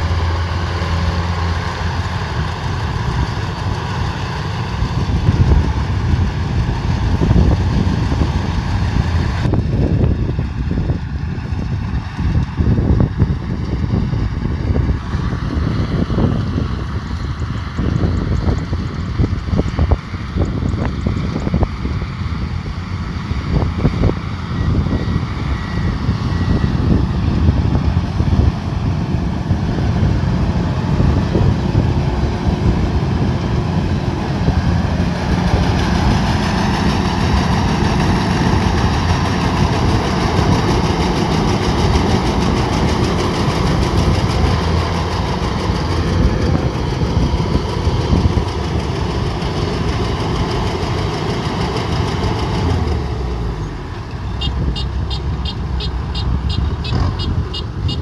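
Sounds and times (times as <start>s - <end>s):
diesel engine running: 0.0s - 58.0s
machinery clatter: 26.8s - 53.3s.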